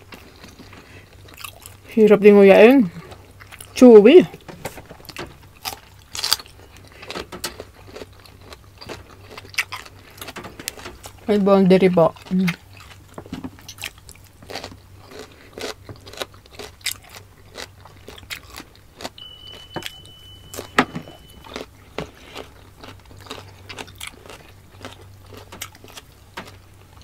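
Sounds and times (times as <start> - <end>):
chewing and wet mouth sounds: 0.0 - 2.0, 2.8 - 3.9, 5.0 - 27.0
faint high tone: 19.2 - 21.6.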